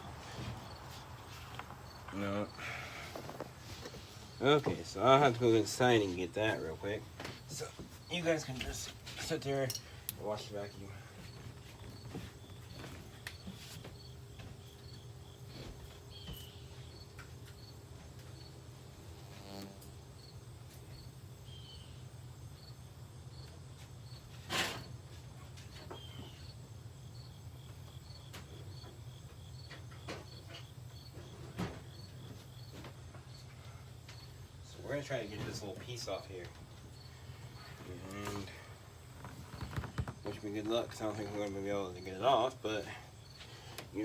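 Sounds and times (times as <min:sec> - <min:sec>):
cricket chirping: 0:19.2 - 0:24.3, 0:26.0 - 0:35.4, 0:36.1 - 0:43.6.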